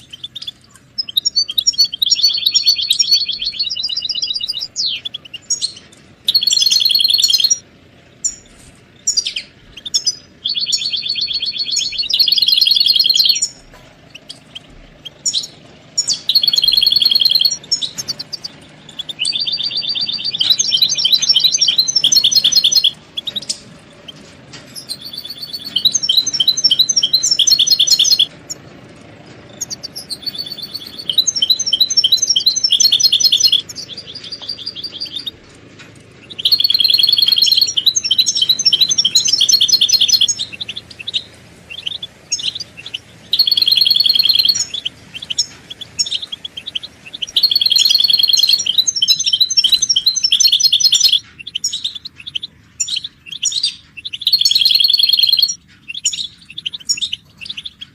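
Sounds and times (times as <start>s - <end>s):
goldfinches twittering: 0.0s - 28.7s, 29.4s - 57.9s.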